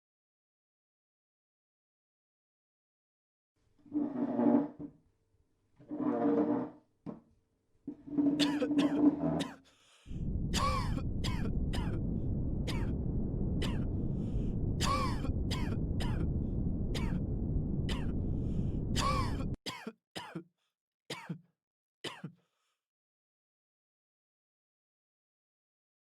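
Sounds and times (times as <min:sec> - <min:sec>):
person coughing: 0:08.4 - 0:09.6, 0:10.6 - 0:12.0, 0:12.7 - 0:12.9, 0:13.6 - 0:13.8, 0:14.8 - 0:16.3, 0:17.9 - 0:18.1, 0:19.0 - 0:20.5, 0:21.1 - 0:21.4, 0:22.1 - 0:22.4
low room rumble: 0:10.1 - 0:19.6.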